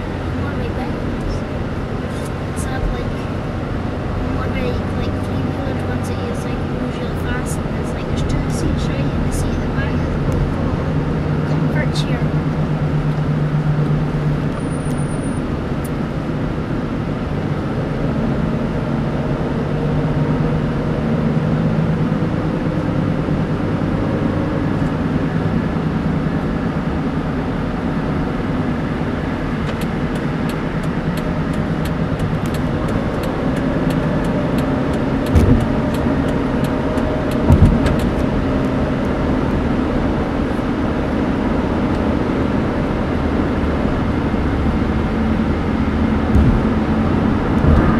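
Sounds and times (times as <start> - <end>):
car cabin road and engine noise: 0.0 - 47.9
short thumps: 35.3 - 36.1, 46.3 - 46.8.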